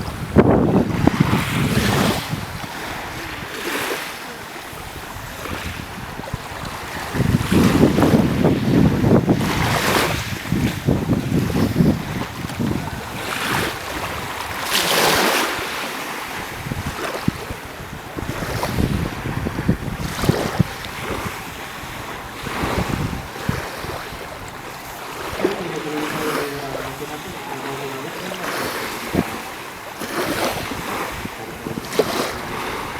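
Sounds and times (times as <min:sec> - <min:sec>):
sea waves washing: 0:00.0 - 0:32.9
wind buffeting microphone: 0:00.0 - 0:32.9.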